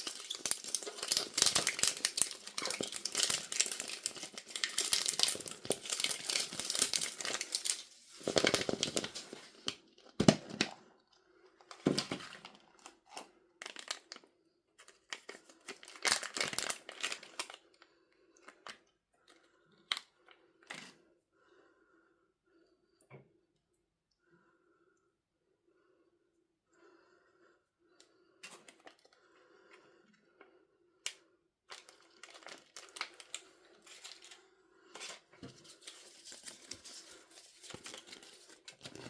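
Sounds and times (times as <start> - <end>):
packaging crinkling and tearing: 0.0 - 10.8, 11.7 - 14.2, 14.8 - 17.7, 31.7 - 34.4, 35.0 - 39.0.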